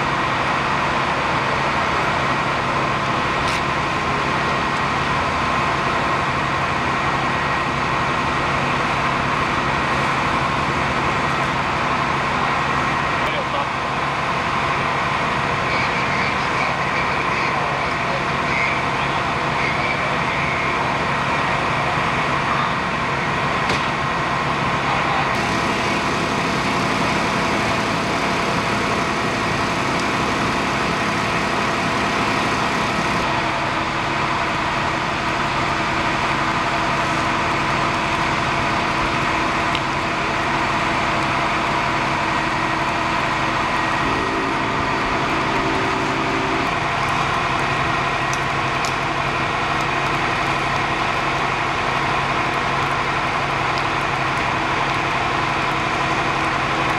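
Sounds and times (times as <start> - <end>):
truck engine idling: 25.4 - 48.1.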